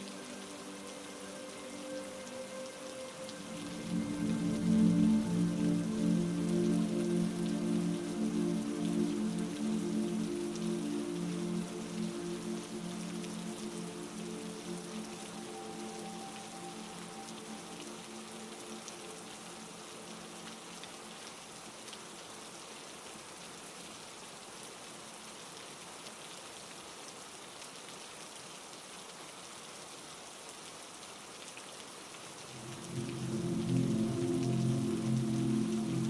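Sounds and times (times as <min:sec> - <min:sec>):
low musical drone: 0:00.0 - 0:20.9, 0:32.5 - 0:36.0
heavy rain: 0:00.0 - 0:36.0.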